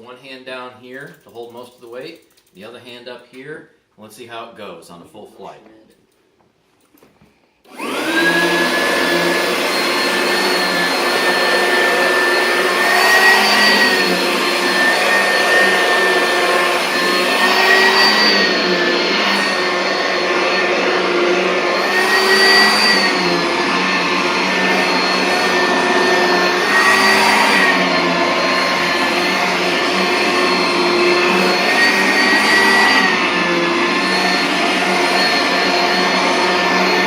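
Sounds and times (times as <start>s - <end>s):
vacuum cleaner motor whining: 7.6s - 37.0s.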